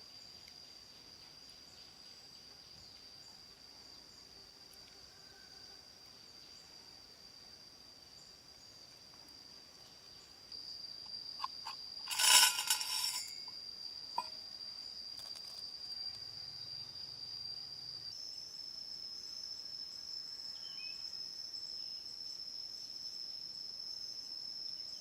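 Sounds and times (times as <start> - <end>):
high-pitched insect drone: 0.0 - 25.0
scraping rustle: 11.6 - 13.5.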